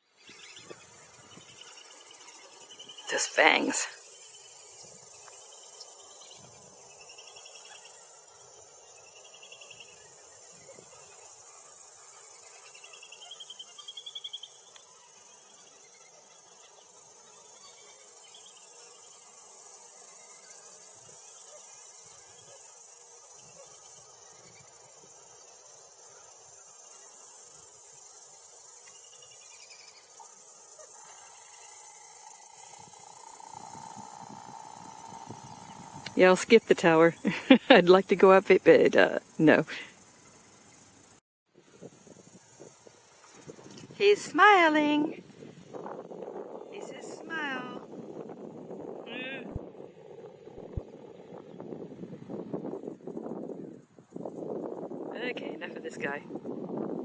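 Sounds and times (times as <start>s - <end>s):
short pulsed insect chirps: 0.0s - 55.1s
crickets shrilling: 0.0s - 57.0s.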